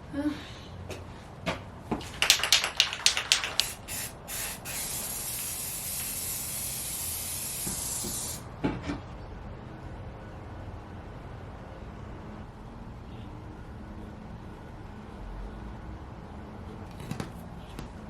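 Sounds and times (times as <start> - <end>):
spray can ball rattling: 2.0 - 8.4
aerosol spray hissing: 3.0 - 8.4.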